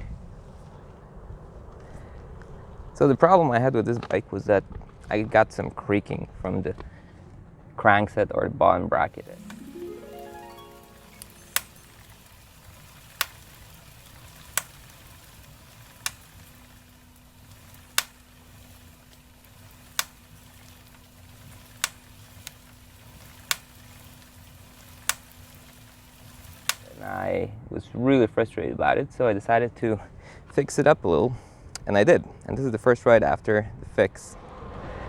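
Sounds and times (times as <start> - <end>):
bicycle crank clicking: 11.2 - 27.1.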